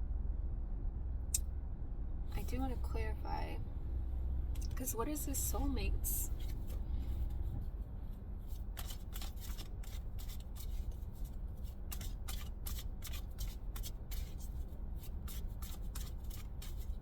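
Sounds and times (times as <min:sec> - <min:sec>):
steady low hum: 0:00.0 - 0:17.0
cards being shuffled by hand: 0:06.3 - 0:07.4, 0:08.5 - 0:17.0.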